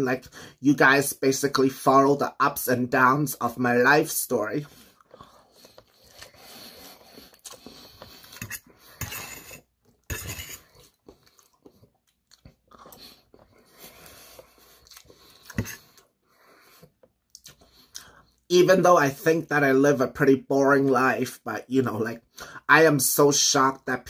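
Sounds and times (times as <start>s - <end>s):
wet chewing: 4.6s - 18.5s
mouth smacks and clicks: 17.1s - 18.1s.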